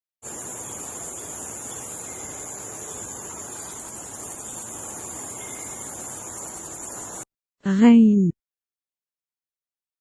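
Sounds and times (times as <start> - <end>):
insect chorus chirring: 0.2 - 7.3.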